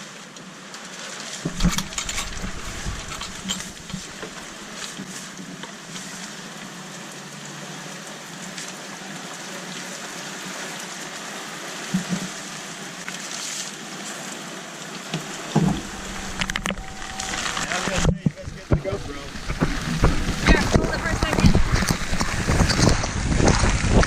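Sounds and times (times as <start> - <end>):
rain hissing: 1.4 - 9.2, 11.3 - 24.0
raindrop ticks: 15.2 - 24.0.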